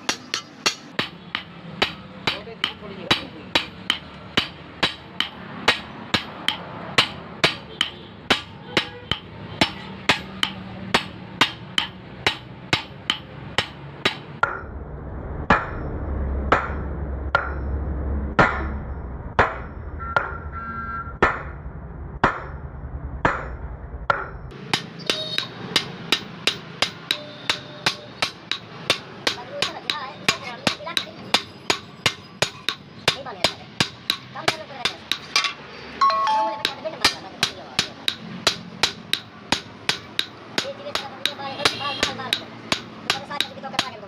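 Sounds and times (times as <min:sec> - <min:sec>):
hammer striking steel blade: 0:00.0 - 0:14.7, 0:15.5 - 0:15.9, 0:16.5 - 0:17.8, 0:23.2 - 0:44.0
low hum: 0:14.4 - 0:24.5.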